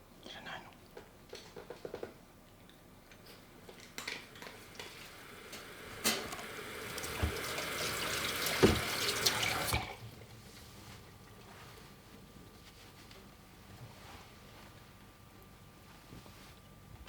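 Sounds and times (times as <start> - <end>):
tap running into a sink: 4.0 - 10.0
light knocks in a sink: 8.6 - 9.0.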